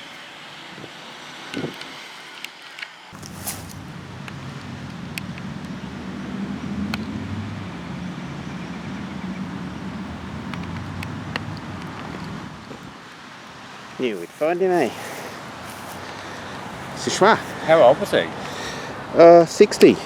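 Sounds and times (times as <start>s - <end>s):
light clicks: 3.2s - 12.8s
engine humming: 3.2s - 19.2s.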